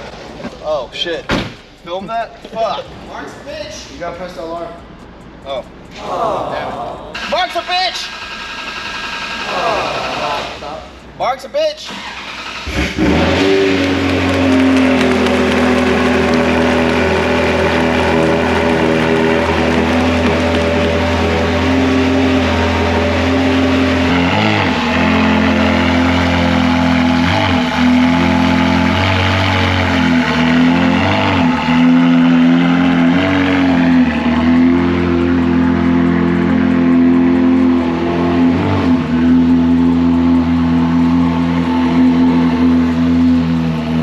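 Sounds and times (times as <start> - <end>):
engine throttle blips: 12.0 - 44.0
car engine idling: 12.2 - 44.0.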